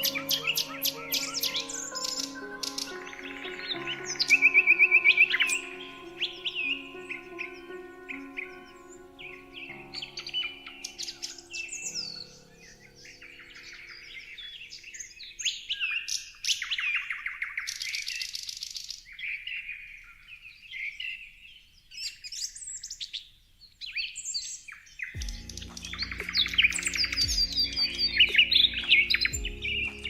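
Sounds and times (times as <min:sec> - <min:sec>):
soft background music: 0:00.0 - 0:14.8, 0:25.2 - 0:30.0
songbirds chirping and singing: 0:00.0 - 0:30.0.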